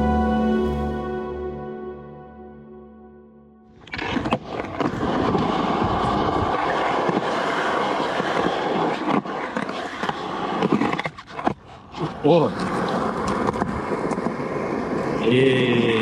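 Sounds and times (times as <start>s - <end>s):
skateboard wheels on rough concrete: 3.8s - 15.3s.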